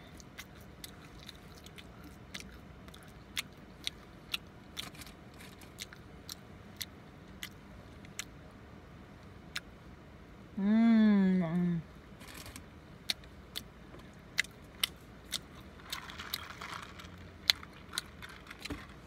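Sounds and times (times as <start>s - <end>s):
person chewing food: 0.0s - 8.4s, 13.0s - 19.0s.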